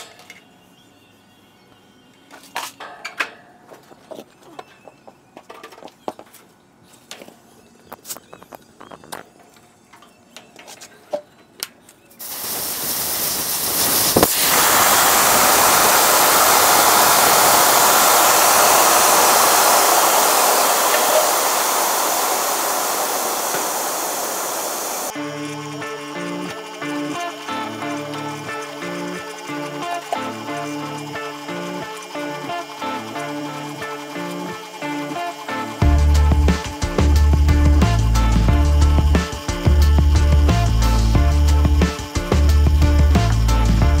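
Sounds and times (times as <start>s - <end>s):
pressurised gas hissing: 12.2s - 25.2s, 26.8s - 44.0s.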